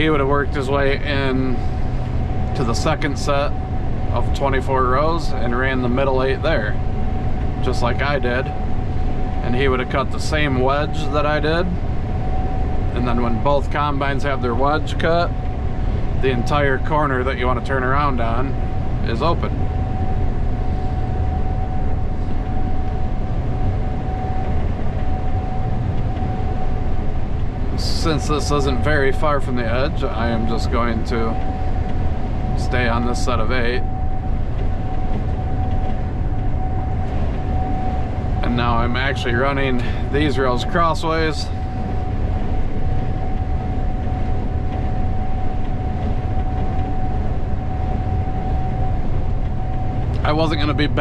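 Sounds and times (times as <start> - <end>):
combine harvester drone: 0.0 - 51.0
thin machine whine: 0.0 - 51.0.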